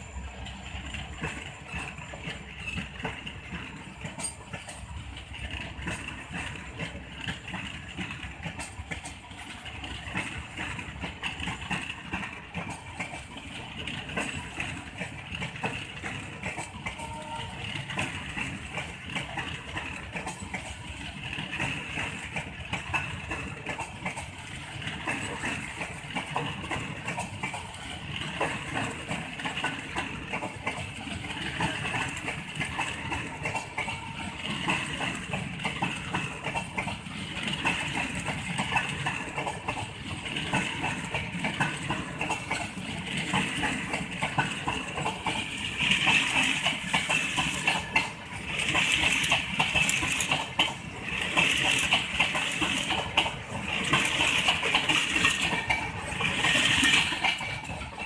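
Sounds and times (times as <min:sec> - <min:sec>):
train wheels clattering over rails: 0:00.0 - 0:58.0.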